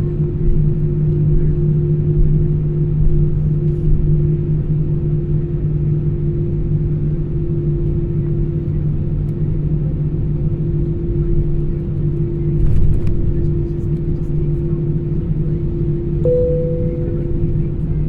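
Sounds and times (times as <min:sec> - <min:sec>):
airliner cabin rumble: 0:00.0 - 0:18.0
two-tone hum: 0:16.2 - 0:18.0.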